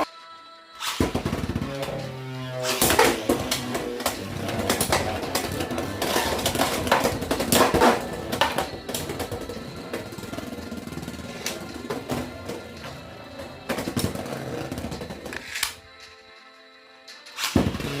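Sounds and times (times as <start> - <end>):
rattling whir of spinning tops: 0.8 - 16.2
spinning tops clacking: 5.0 - 16.2.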